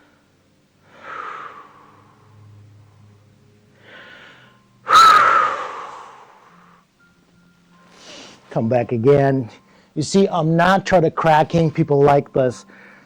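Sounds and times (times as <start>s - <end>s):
person breathing hard: 0.0s - 2.6s, 3.8s - 6.8s, 7.9s - 8.5s, 12.7s - 13.0s.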